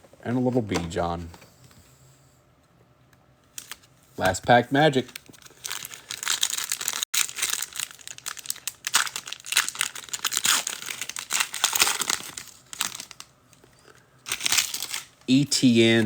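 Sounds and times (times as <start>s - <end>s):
foil wrapper tearing and crinkling: 5.2s - 13.3s, 14.3s - 15.2s.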